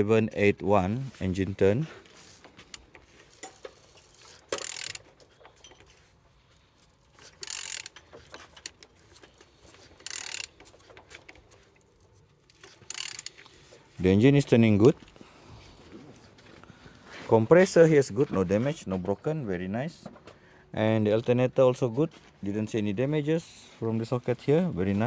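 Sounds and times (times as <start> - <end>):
faint mechanical clicks: 1.6 - 13.9.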